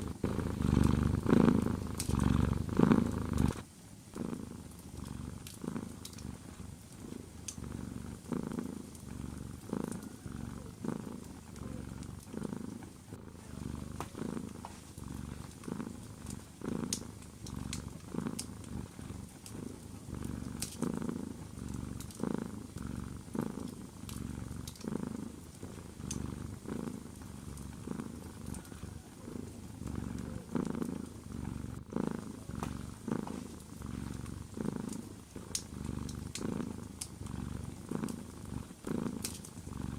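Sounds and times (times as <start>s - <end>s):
cat purring: 0.0s - 39.9s
wood fire crackling: 4.6s - 12.8s, 13.8s - 28.8s.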